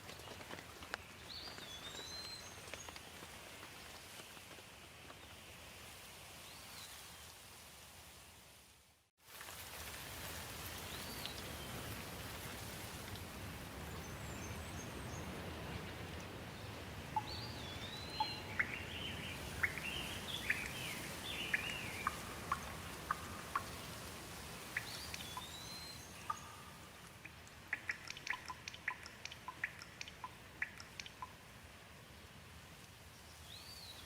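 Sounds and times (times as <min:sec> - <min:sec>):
light rain: 0:00.0 - 0:34.0
water dripping: 0:17.1 - 0:31.6
bird calling: 0:17.2 - 0:23.8.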